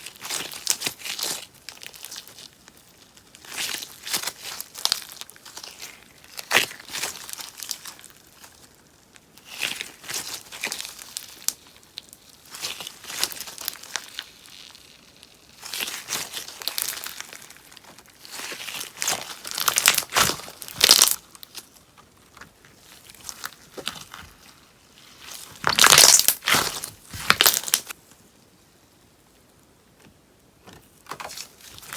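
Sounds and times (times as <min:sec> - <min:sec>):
slime popping crackly: 0:03.6 - 0:08.6, 0:09.4 - 0:21.7, 0:25.2 - 0:28.0.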